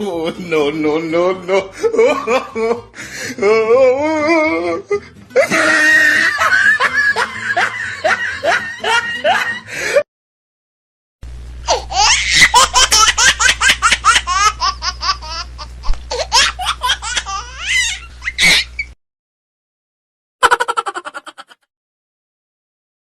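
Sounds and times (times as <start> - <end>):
hearty laugh: 1.5 - 3.0, 5.3 - 10.0, 20.4 - 21.7
high-pitched laugh ending in squeal: 5.4 - 9.7, 11.7 - 15.5, 16.1 - 19.0, 20.4 - 21.7
low hum: 11.2 - 11.9.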